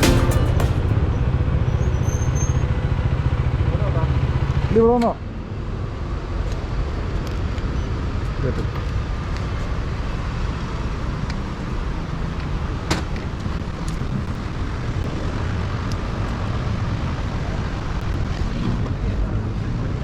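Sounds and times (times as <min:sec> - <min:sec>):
sharp click: 0:00.0 - 0:01.0.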